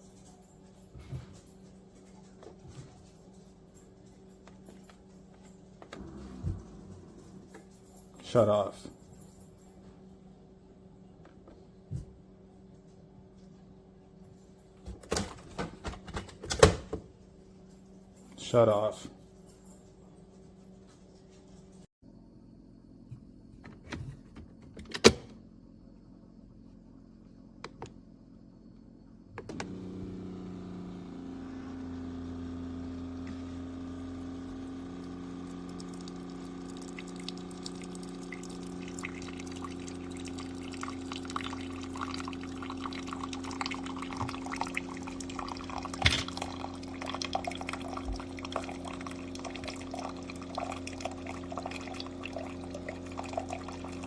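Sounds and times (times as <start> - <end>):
coffee maker pump humming: 0.0 - 17.0, 29.4 - 54.0
coffee dripping into cup: 34.0 - 54.0.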